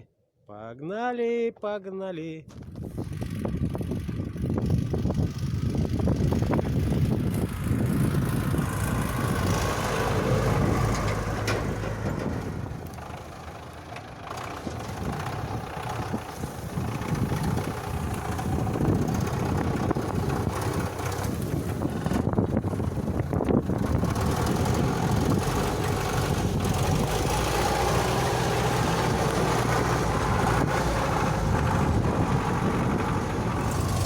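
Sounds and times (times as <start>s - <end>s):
truck engine running: 2.5s - 34.0s
wind buffeting microphone: 2.5s - 34.0s.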